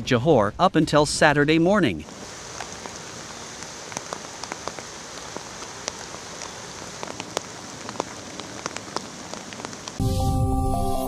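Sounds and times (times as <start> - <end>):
steady rain: 1.9 - 10.1
raindrop ticks: 2.1 - 10.0.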